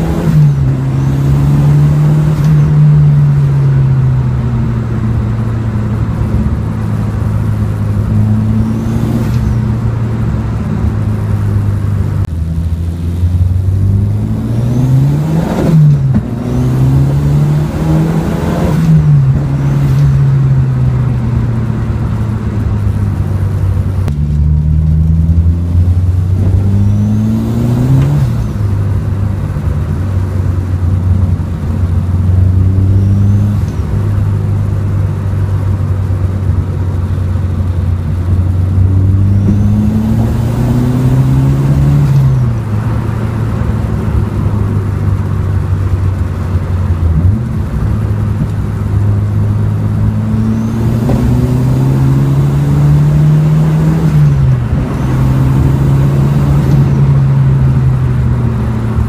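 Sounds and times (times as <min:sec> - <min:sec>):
car engine accelerating: 0:00.0 - 0:59.0
tyre noise on wet road: 0:15.7 - 0:59.0.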